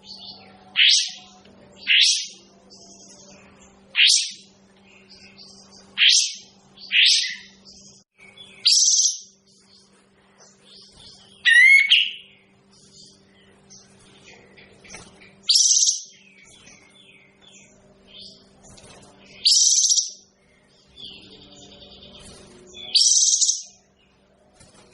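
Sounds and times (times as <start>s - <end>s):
faint low hum: 0.0s - 24.9s
soft bird chirps: 0.0s - 24.9s
bulbul calling: 11.4s - 12.4s.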